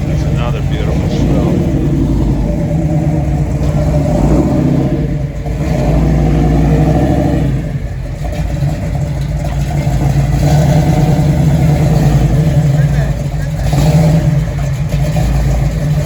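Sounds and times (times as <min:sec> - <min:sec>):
car engines rumbling through exhausts: 0:00.0 - 0:16.0.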